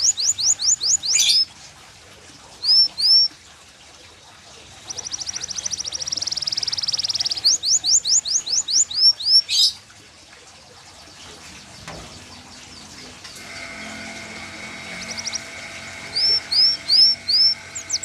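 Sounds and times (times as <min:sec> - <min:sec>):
canary singing: 0:00.0 - 0:01.5, 0:02.6 - 0:03.3, 0:04.8 - 0:09.8, 0:11.5 - 0:18.0
faint steady hum: 0:00.0 - 0:18.0.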